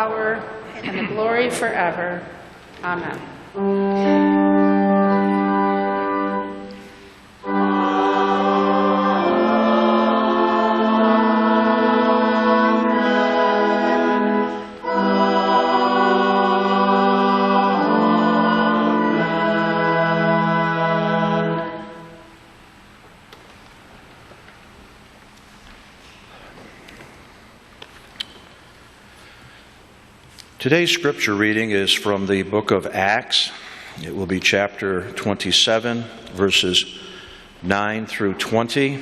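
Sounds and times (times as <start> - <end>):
organ accompaniment: 2.9 - 24.1
choir singing: 7.4 - 22.3.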